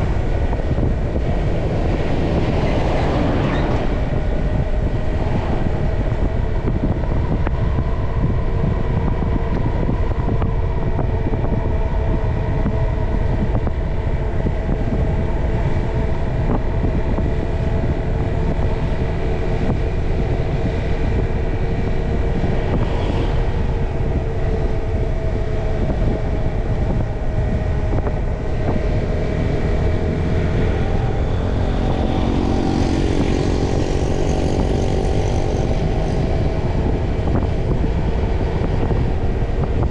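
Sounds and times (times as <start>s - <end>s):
motorcycle engine running: 16.0s - 39.9s.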